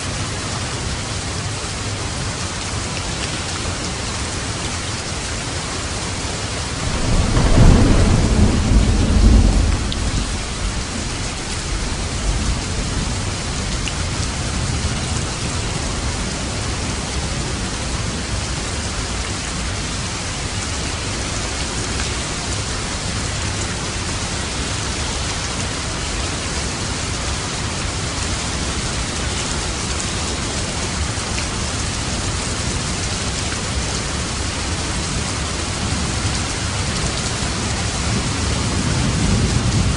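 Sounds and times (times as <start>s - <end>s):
steady rain: 0.0s - 39.9s
low thunder rumble: 6.6s - 18.5s, 37.6s - 39.9s.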